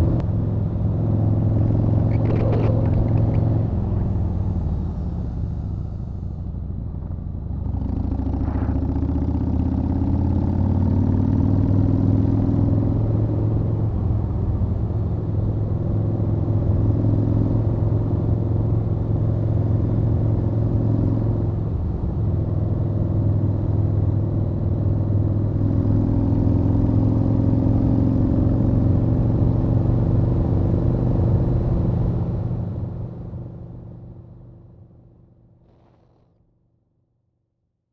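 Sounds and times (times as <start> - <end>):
motorcycle engine revving: 1.4 - 3.7, 35.6 - 36.4.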